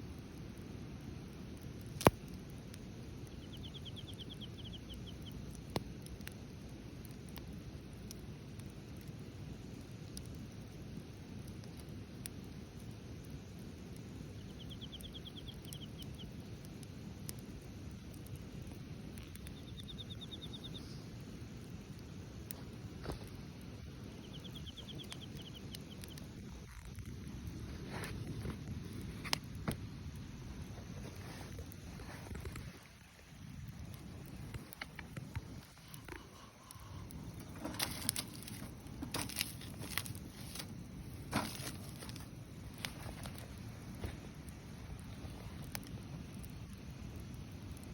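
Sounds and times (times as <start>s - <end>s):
wood fire crackling and popping: 0.0s - 47.9s
small bird trilling: 3.3s - 5.3s, 14.4s - 16.2s, 24.1s - 26.1s.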